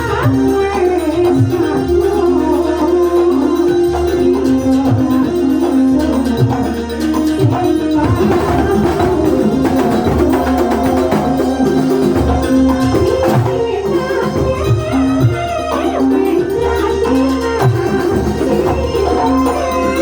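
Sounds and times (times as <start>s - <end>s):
drums and percussion beating: 0.0s - 20.0s
sustained melodic lines: 0.0s - 20.0s.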